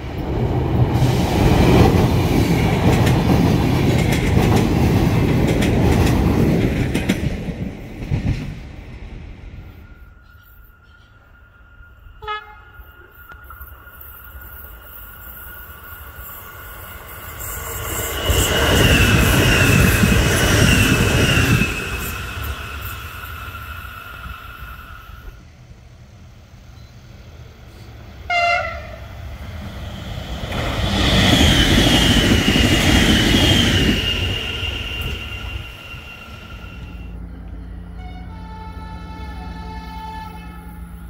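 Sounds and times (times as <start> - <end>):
high wavering train whine: 0.0 - 41.0
train wheel-on-rail rumble: 0.0 - 41.0.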